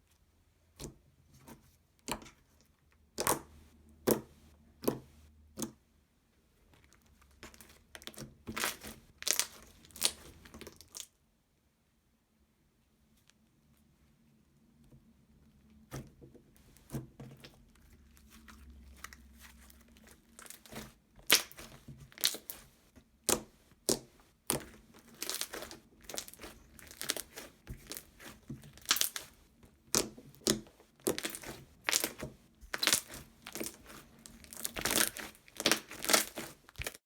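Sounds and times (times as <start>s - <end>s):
slime squished by hand: 6.8s - 11.1s, 16.7s - 37.0s.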